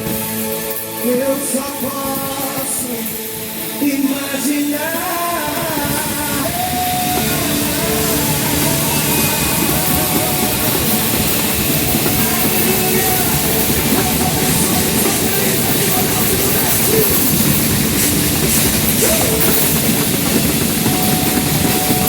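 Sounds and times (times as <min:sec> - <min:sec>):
drums and cymbals: 0:00.0 - 0:22.0
live rock band playing: 0:00.0 - 0:22.0.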